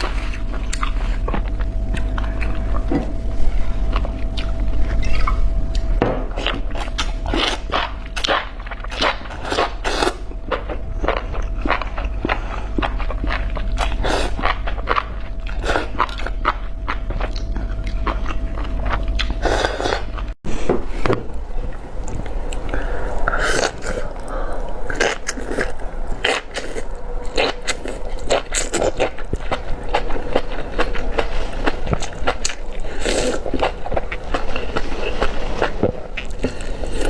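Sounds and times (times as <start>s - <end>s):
low hum: 0.0s - 37.0s.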